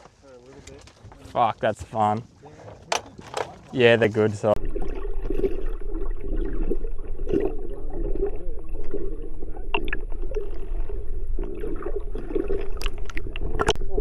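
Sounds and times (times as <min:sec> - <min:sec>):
water sloshing against boat hull: 0:02.7 - 0:04.1.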